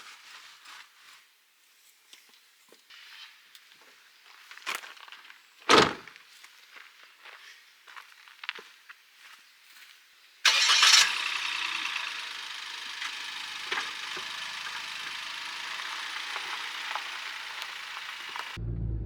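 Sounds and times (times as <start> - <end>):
engine starter cranking: 10.5 - 18.6
engine idling: 10.5 - 19.0.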